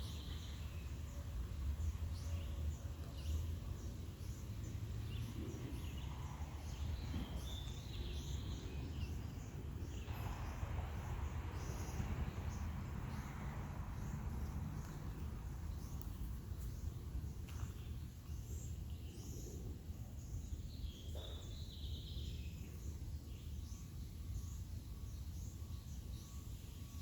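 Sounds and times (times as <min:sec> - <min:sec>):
steady low rumble: 0:00.0 - 0:21.3
birds chirping: 0:00.0 - 0:27.0
broad rush of noise: 0:04.7 - 0:16.9.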